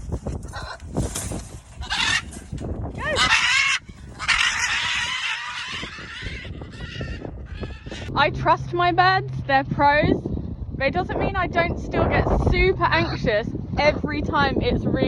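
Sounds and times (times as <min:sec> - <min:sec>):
wind rumble on microphone: 0:00.0 - 0:15.0
macaws screeching: 0:01.8 - 0:02.4, 0:03.0 - 0:08.1.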